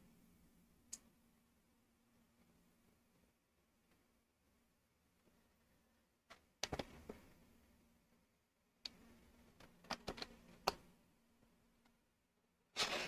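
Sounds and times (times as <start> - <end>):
plastic lego pieces clicking: 9.6 - 10.8.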